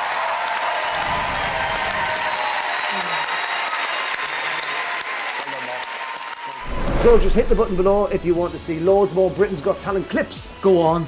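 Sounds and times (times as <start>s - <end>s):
large audience applauding: 0.0s - 6.7s.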